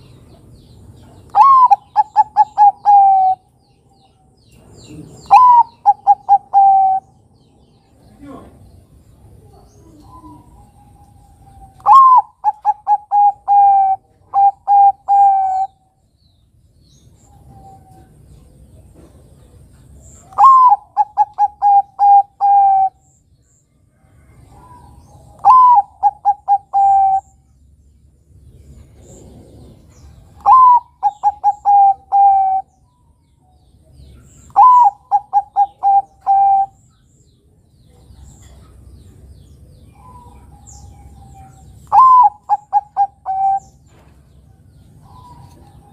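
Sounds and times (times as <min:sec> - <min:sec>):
dove cooing: 0:01.3 - 0:03.5, 0:04.9 - 0:07.2, 0:09.4 - 0:15.8, 0:20.2 - 0:23.0, 0:24.3 - 0:27.4, 0:29.0 - 0:32.8, 0:34.4 - 0:36.8, 0:39.9 - 0:43.9.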